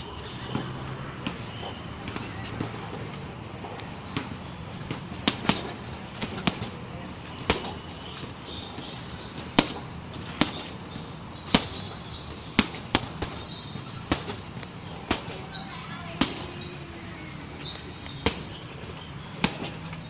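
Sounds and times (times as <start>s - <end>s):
punches thudding on punching bag: 4.1s - 16.7s, 18.1s - 20.0s.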